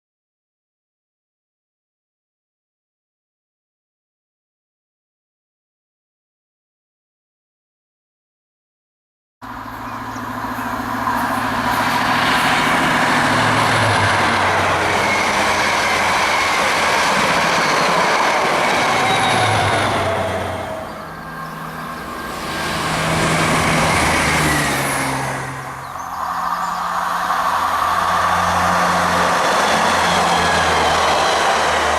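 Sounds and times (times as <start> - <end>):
low engine hum: 9.4 - 17.4, 19.5 - 31.9
train wheels rushing on rail: 9.4 - 31.9.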